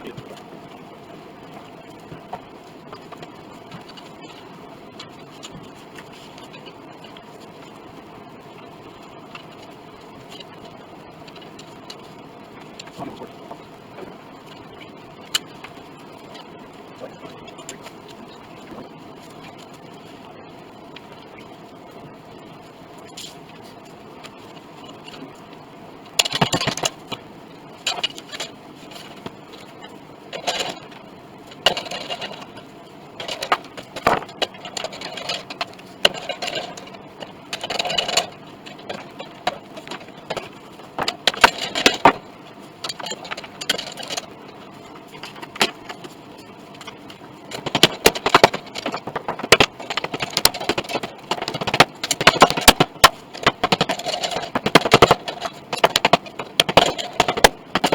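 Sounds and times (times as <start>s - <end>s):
hand tool scraping wood: 47.5s - 57.9s.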